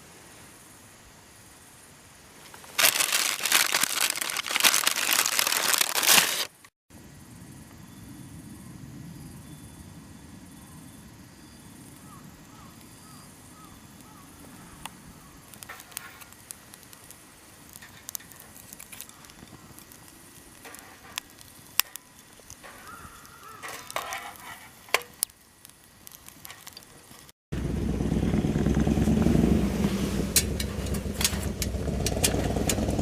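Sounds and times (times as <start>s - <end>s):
charcoal crackling: 2.5s - 6.7s, 15.4s - 27.4s
charcoal fire low rush: 15.0s - 33.0s.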